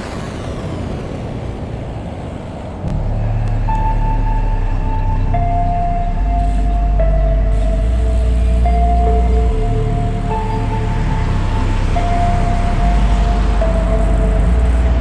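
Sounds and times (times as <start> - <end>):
electronic music with deep bass: 2.9 - 15.0.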